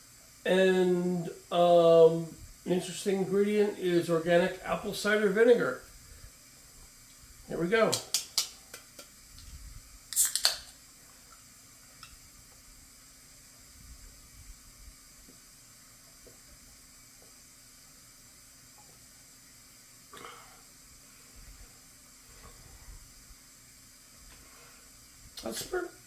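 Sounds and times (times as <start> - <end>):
can opening pop and hiss: 7.9 - 10.8.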